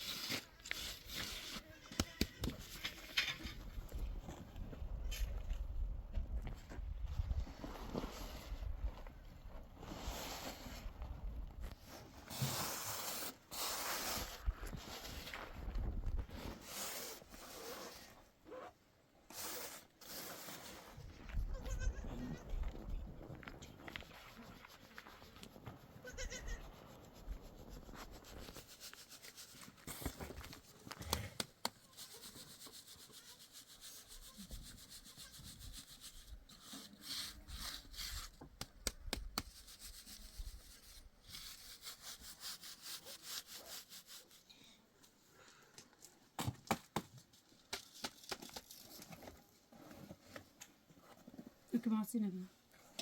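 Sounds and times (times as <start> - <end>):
rough scraping and rubbing: 0.0 - 3.9, 11.8 - 18.7, 19.3 - 21.2, 26.6 - 30.9, 31.6 - 38.6, 39.4 - 44.5
goat bleating: 21.5 - 22.5, 26.0 - 26.6.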